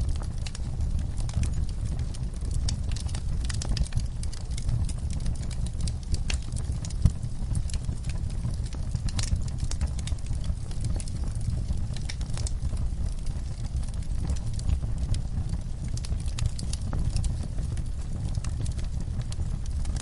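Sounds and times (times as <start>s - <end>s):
low rumble of flames: 0.0s - 20.0s
wood fire crackling: 0.0s - 20.0s
sharp pops and snaps: 9.0s - 12.5s.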